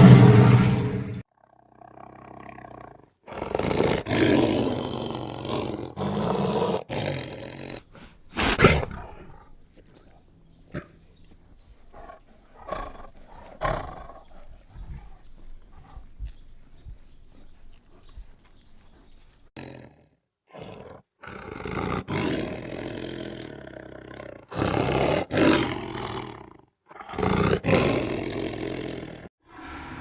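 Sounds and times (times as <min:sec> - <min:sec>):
big cat growling and roaring: 0:00.0 - 0:09.6, 0:19.6 - 0:30.0
big cat rasping grunts: 0:11.9 - 0:16.1, 0:19.6 - 0:29.3.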